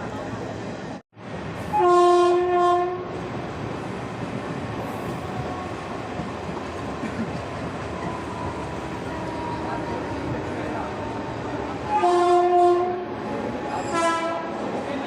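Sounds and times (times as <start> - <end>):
moving train rumble and clatter: 0.0 - 15.0
train horn blast: 1.7 - 3.1, 9.0 - 14.6.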